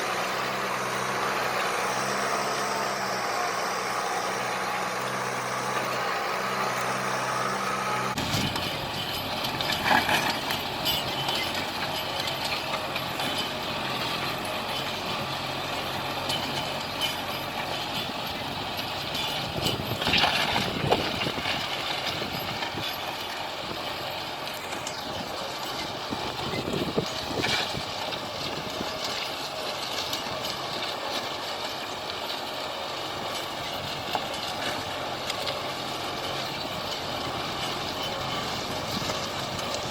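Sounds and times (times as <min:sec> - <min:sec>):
tractor engine running: 0:00.0 - 0:39.9
engine knocks: 0:07.6 - 0:39.9.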